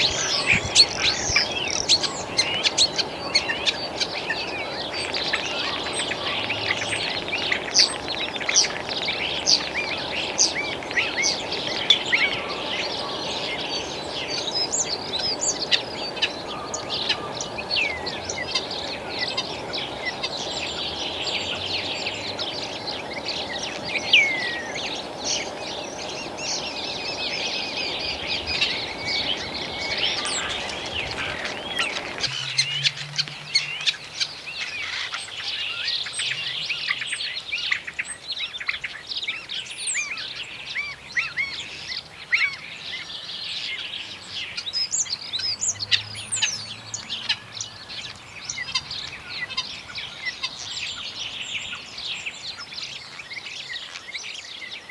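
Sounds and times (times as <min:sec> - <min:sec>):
starling singing: 0:00.0 - 0:37.0
low rushing background noise: 0:00.0 - 0:37.5.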